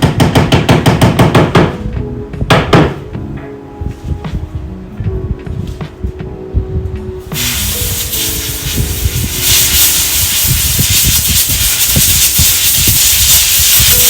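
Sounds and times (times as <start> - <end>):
air blow gun hissing: 7.3 - 14.0.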